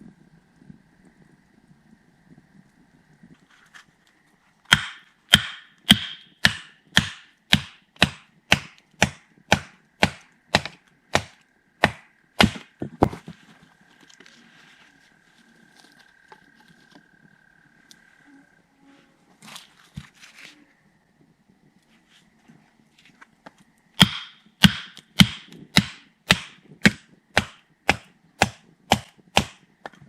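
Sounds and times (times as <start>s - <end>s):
wood being chopped: 4.7s - 13.3s, 24.0s - 30.0s.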